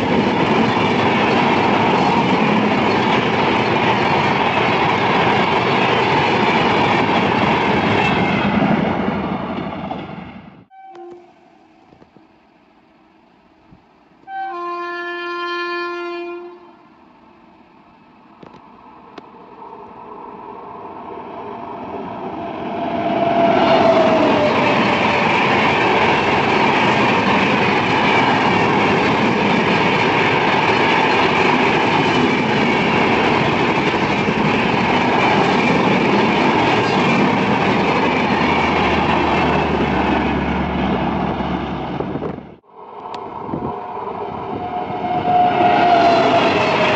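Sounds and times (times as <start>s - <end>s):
train passing with rumble and clatter: 0.0s - 10.7s, 17.0s - 46.9s
train horn: 10.7s - 11.6s, 14.2s - 17.0s, 44.5s - 46.9s.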